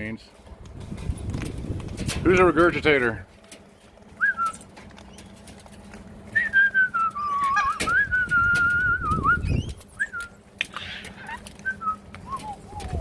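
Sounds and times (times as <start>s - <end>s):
wavering whistle: 6.4s - 10.4s.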